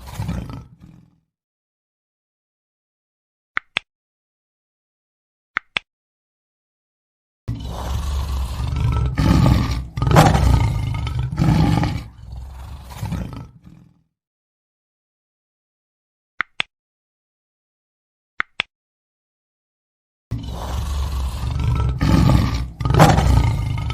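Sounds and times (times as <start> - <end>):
lion roaring: 0.0 - 1.2, 7.5 - 14.0, 20.3 - 23.9.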